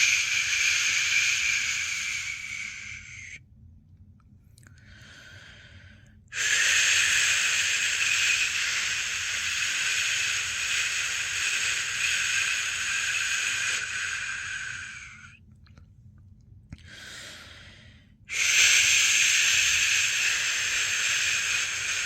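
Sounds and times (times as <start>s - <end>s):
person shushing: 0.0s - 3.4s, 6.4s - 15.3s, 18.3s - 22.0s.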